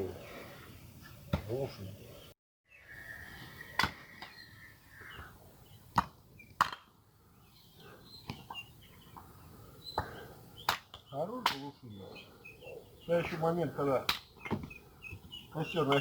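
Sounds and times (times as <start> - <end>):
axe chopping firewood: 5.9 - 6.9, 10.0 - 11.7, 14.0 - 14.7.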